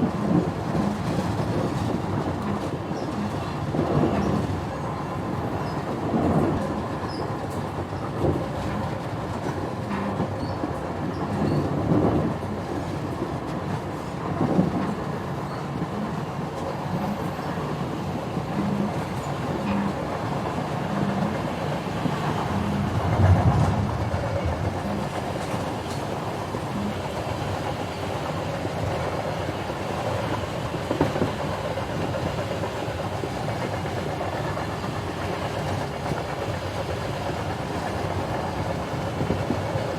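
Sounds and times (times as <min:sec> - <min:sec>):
vehicle ride rumbling: 0:18.4 - 0:27.2.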